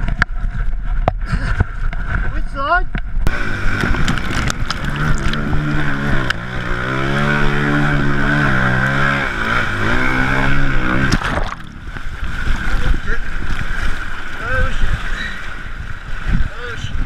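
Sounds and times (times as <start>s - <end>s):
dirt bike engine revving: 3.2s - 11.6s.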